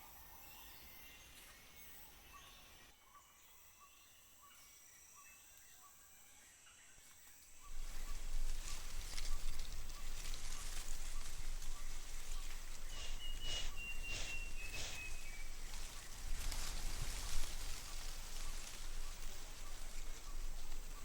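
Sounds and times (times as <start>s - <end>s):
insect chorus chirping: 12.2s - 16.7s
rain hissing: 12.8s - 15.4s.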